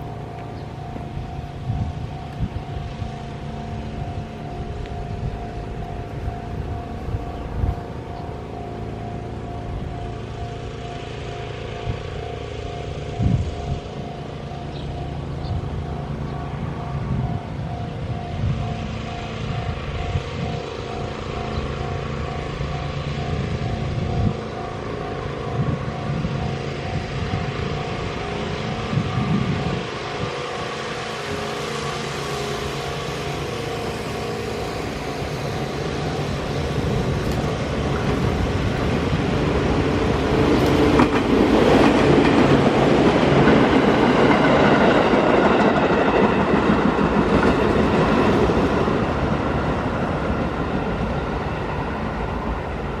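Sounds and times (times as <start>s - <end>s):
electric train passing: 0.0s - 53.0s
train wheel clicks: 36.0s - 50.8s.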